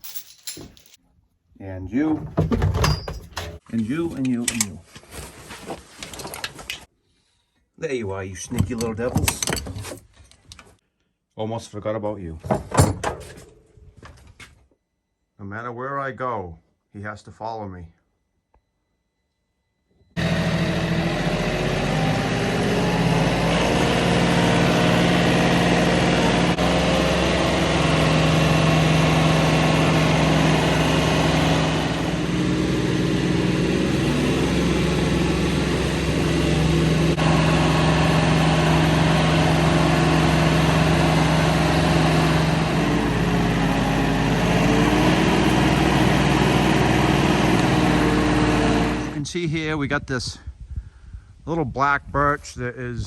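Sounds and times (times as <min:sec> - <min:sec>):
small engine running: 0:20.2 - 0:49.2.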